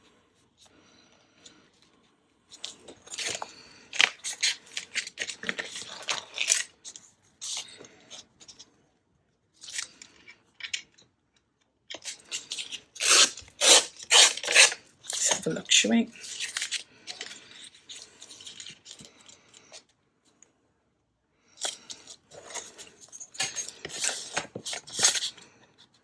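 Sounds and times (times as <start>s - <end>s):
paper rustling and crinkling: 1.6s - 8.6s, 12.0s - 19.3s, 21.6s - 25.9s.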